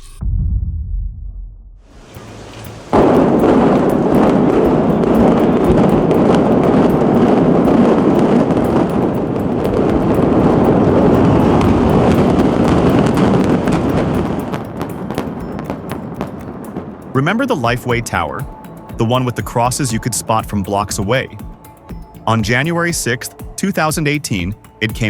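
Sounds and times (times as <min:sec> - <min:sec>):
rumble of falling debris: 0:02.0 - 0:18.1
sharp cracks: 0:02.2 - 0:18.6.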